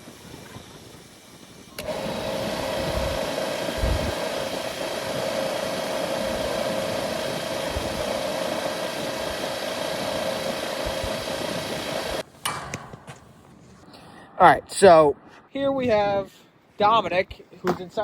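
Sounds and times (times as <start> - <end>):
machine whining over rushing noise: 1.7 - 12.2.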